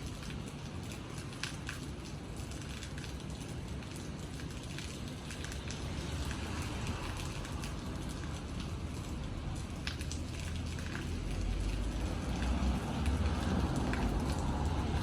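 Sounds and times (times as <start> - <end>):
raindrops ticking: 0.0 - 15.0
steady rain falling: 0.0 - 15.0.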